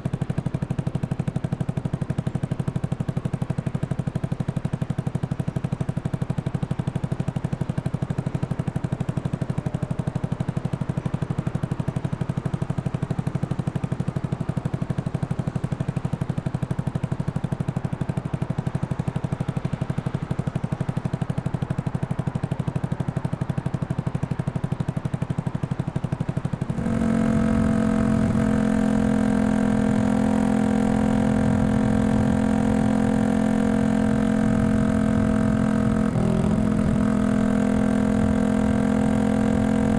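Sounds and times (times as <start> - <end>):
single-cylinder engine pulsing: 0.0 - 39.9
high-pitched exhaust drone: 26.6 - 39.9.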